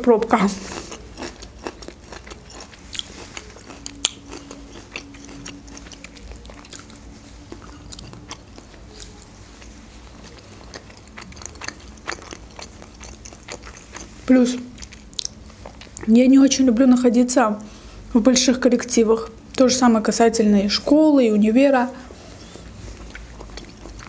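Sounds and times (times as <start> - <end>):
chewing and biting beef: 0.6 - 16.0, 22.2 - 24.0.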